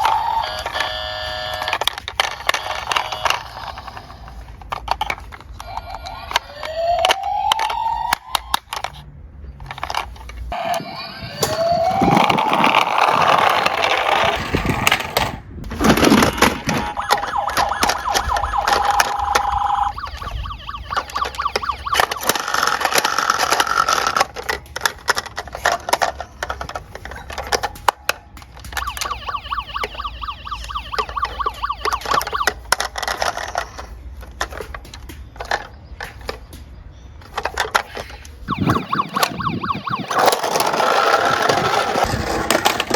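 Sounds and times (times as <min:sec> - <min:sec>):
siren tones: 0:00.0 - 0:04.4, 0:05.6 - 0:08.7, 0:10.5 - 0:13.9, 0:16.2 - 0:23.7, 0:28.7 - 0:32.7, 0:38.4 - 0:42.8
toy cars clattering down a slope: 0:00.0 - 0:10.6, 0:11.3 - 0:29.2, 0:29.8 - 0:36.6, 0:37.2 - 0:38.5, 0:40.1 - 0:42.9.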